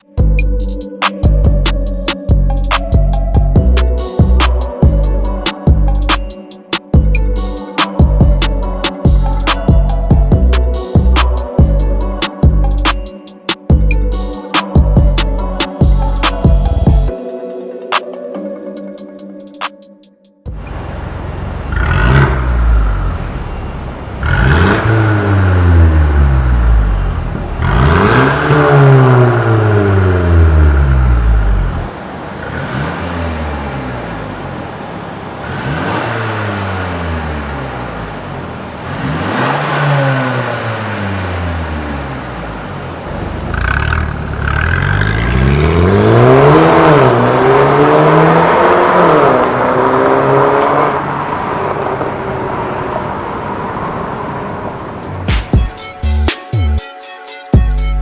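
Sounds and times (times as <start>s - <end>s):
car engine revving: 20.5s - 56.3s.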